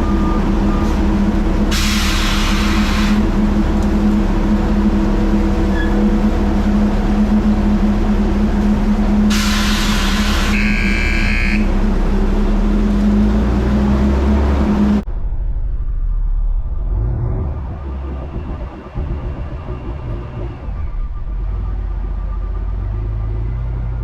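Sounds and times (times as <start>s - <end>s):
truck engine droning: 0.0s - 24.0s
burst of hiss: 9.3s - 10.6s.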